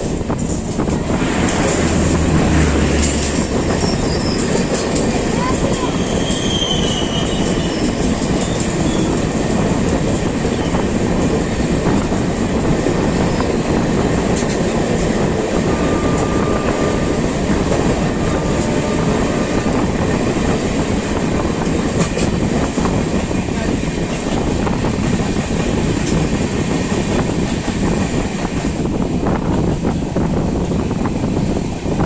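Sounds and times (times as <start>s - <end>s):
wheels clicking over rail joints: 0.0s - 12.2s
train coaches rumbling and rattling: 0.0s - 32.0s.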